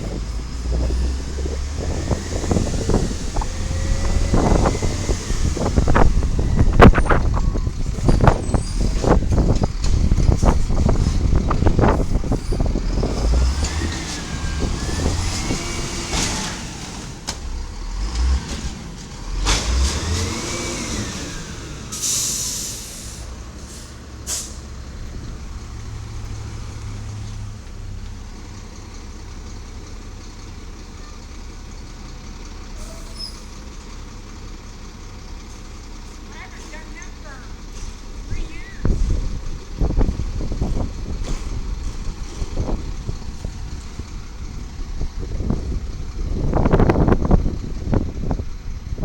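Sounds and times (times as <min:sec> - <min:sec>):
garbage truck engine revving: 0:00.0 - 0:28.4, 0:32.3 - 0:49.0
air brakes hissing: 0:21.8 - 0:24.8, 0:32.8 - 0:33.7.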